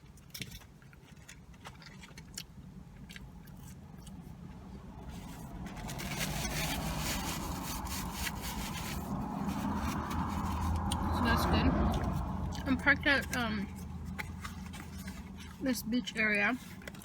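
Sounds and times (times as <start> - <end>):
steady low rumble: 2.6 - 17.0
paper wrapper crinkling: 5.0 - 11.1, 13.5 - 17.0.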